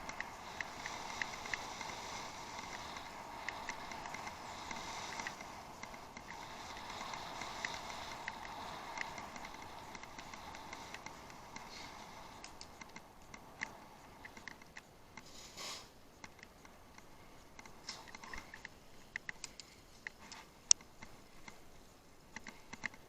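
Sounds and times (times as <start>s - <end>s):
bicycle tyre hiss: 0.0s - 14.4s, 15.2s - 16.1s
bike ticks and clicks: 0.0s - 23.0s.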